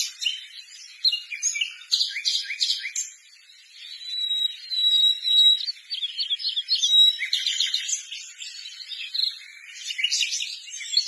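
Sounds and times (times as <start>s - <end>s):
small birds chirping: 0.0s - 11.0s
bird whistled notes: 3.8s - 7.9s.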